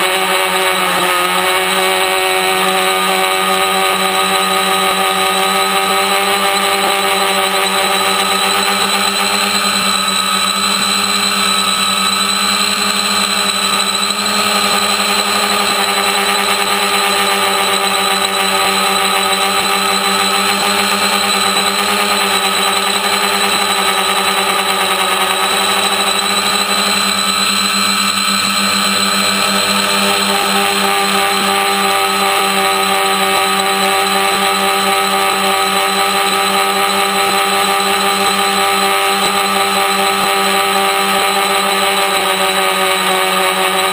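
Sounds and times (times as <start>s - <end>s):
multicopter motors buzzing: 0.0s - 43.9s.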